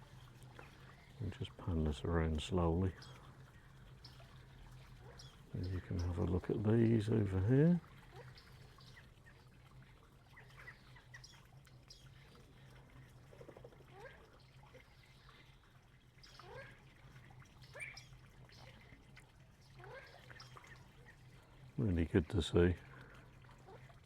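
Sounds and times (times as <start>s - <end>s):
low steady hum: 0.0s - 24.0s
faint bird chirps: 10.3s - 12.6s, 13.4s - 16.8s, 17.6s - 19.0s.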